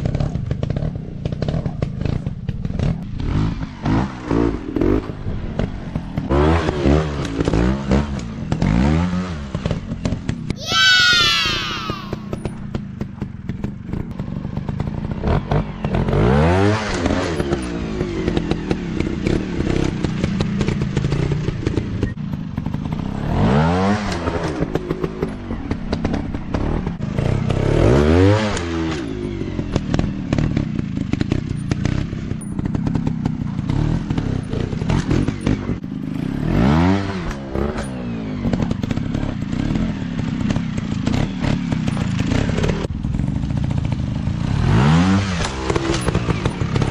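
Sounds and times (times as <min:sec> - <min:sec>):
dirt bike engines revving: 0:10.6 - 0:12.6, 0:44.4 - 0:46.9.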